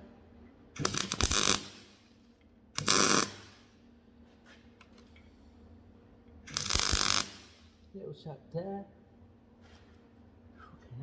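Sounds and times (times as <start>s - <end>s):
welder arc crackling: 0.8s - 2.0s, 2.8s - 3.6s, 6.5s - 7.7s.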